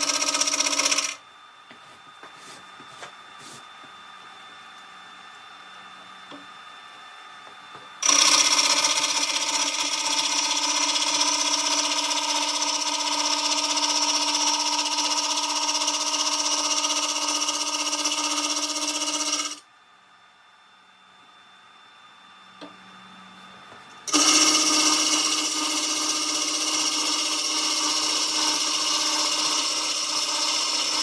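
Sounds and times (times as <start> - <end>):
lathe whine with cutting hiss: 24.1 - 31.0.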